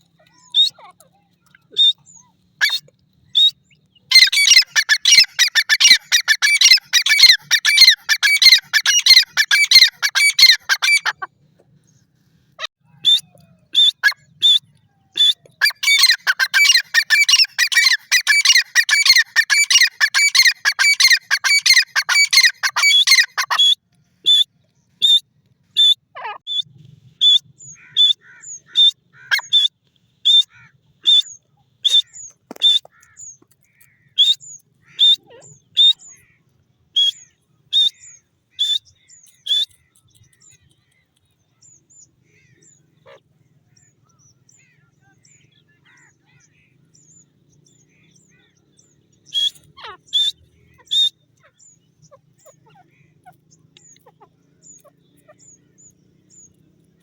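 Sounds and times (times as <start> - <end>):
francolin calling: 3.4 - 11.3, 15.2 - 25.2, 37.0 - 40.8, 44.7 - 57.0.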